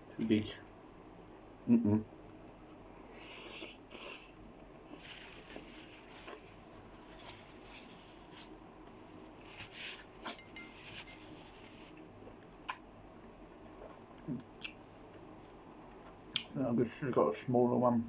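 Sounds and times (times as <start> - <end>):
wet mouth noises: 3.1 - 4.4, 14.3 - 14.8
light mouth clicks: 14.3 - 14.8.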